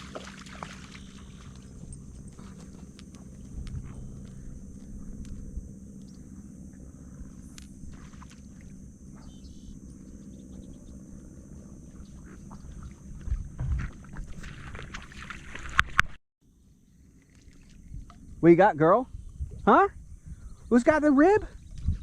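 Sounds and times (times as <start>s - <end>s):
boat motor running: 0.0s - 15.8s.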